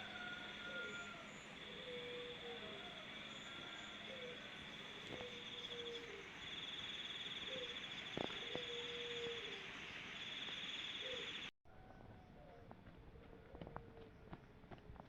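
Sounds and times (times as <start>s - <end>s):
insects trilling: 0.0s - 11.5s.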